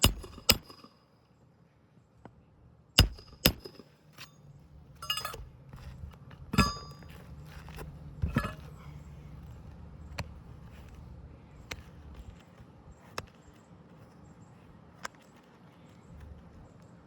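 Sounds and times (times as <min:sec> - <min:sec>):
hammer striking roofing nails: 0:00.0 - 0:00.9, 0:03.0 - 0:03.9
low steady hum: 0:00.0 - 0:17.0.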